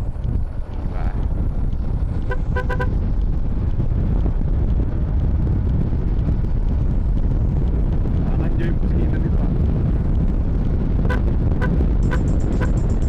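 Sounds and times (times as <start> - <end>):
wind and road rumble: 0.0 - 13.0
vehicle horn beeps: 2.3 - 3.0, 11.0 - 12.9.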